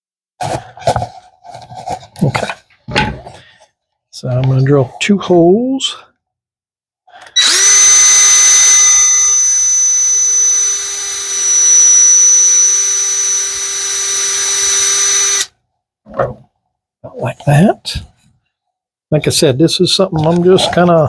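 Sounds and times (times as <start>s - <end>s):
power drill drilling wood: 7.2s - 15.5s.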